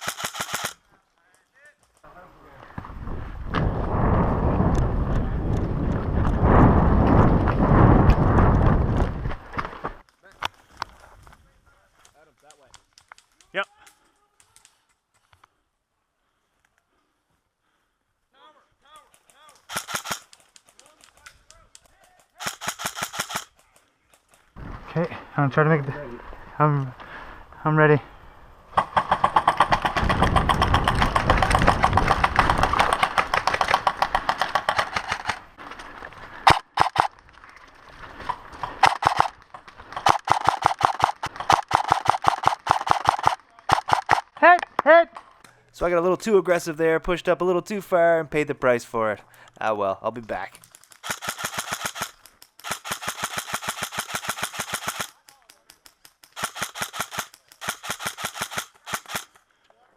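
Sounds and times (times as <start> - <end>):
airsoft rifle firing full auto: 0.0 - 0.8, 19.7 - 20.3, 22.4 - 23.5, 40.0 - 44.2, 51.0 - 55.2, 56.3 - 59.3
short sharp cracks: 19.0 - 24.4, 36.4 - 37.6, 38.2 - 45.6, 50.5 - 59.4.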